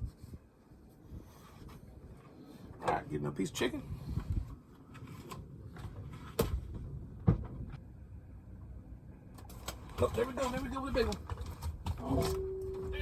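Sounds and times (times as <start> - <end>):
wind rumble on microphone: 0.0 - 2.7, 3.8 - 4.7, 5.4 - 8.2.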